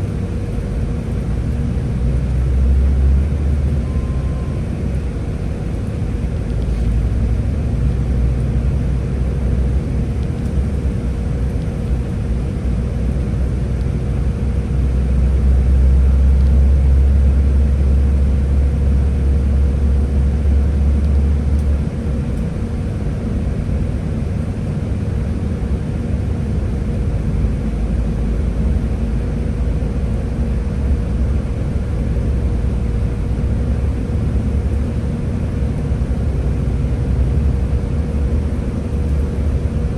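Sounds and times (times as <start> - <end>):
bus engine and road rumble: 0.0 - 39.9.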